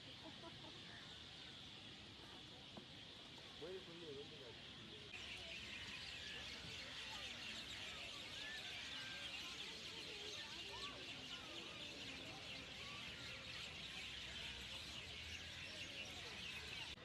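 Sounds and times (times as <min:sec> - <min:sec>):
bird chirps and calls: 0:04.6 - 0:17.0.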